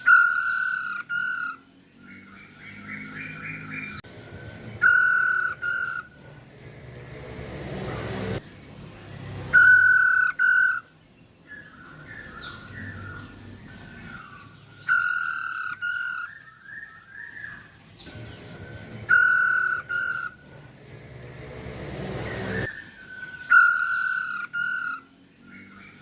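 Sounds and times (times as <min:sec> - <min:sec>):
bird harsh double calls: 0:00.0 - 0:01.6, 0:04.8 - 0:06.2, 0:09.5 - 0:10.9, 0:14.9 - 0:16.4, 0:19.1 - 0:20.4, 0:23.5 - 0:25.1.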